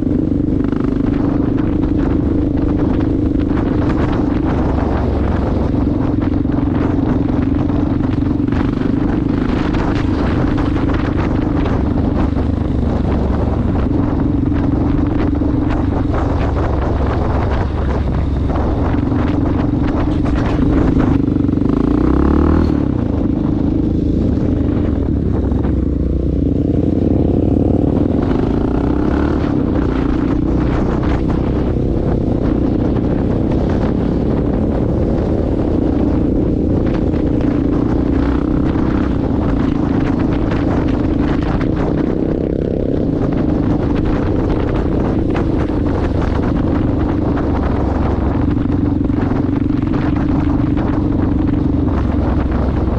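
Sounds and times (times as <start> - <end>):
wind on microphone: 0.0 - 52.9
dirt bike engine revving: 18.5 - 23.4.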